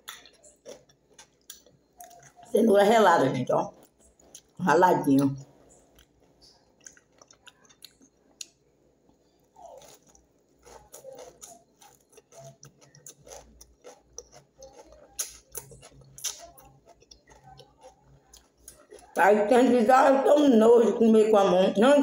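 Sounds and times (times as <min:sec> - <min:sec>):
person chewing salad: 0:00.0 - 0:02.6, 0:03.7 - 0:19.2.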